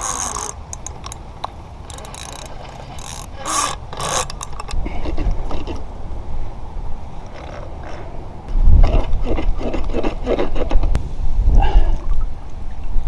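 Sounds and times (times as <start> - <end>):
fishing reel ratcheting: 0.0 - 4.8
wind rumbling on microphone: 0.0 - 13.0.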